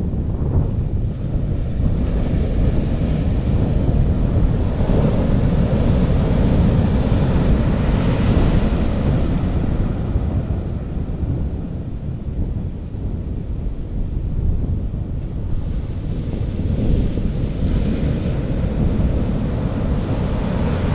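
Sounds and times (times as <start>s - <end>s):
wind rumble on microphone: 0.0s - 20.9s
sea waves washing onto beach: 1.7s - 11.0s, 15.3s - 20.9s.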